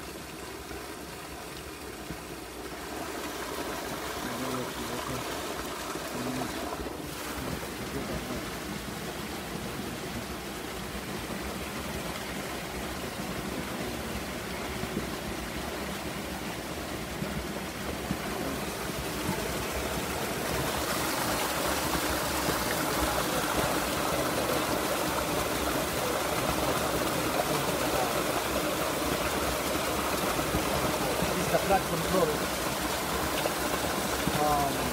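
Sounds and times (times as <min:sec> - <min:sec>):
river water rushing: 0:00.0 - 0:34.9.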